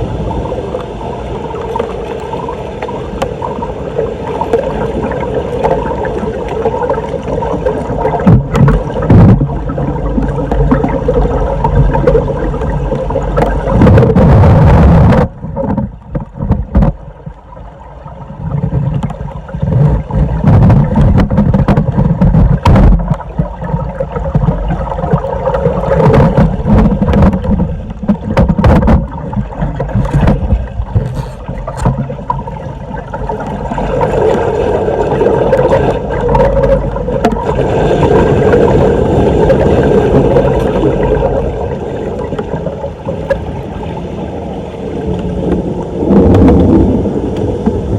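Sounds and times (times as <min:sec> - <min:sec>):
water gurgling into drain: 0:00.0 - 0:47.9
knocks in drain: 0:19.8 - 0:23.2, 0:26.0 - 0:29.2.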